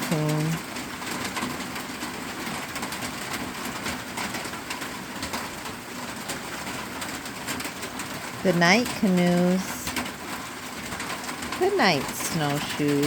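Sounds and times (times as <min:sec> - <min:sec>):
heavy rain on a metal roof: 0:00.0 - 0:13.0.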